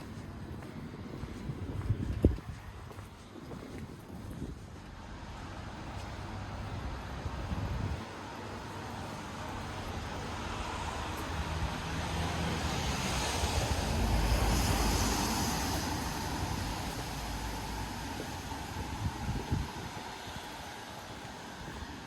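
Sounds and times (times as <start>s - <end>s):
car passing: 5.0s - 21.8s.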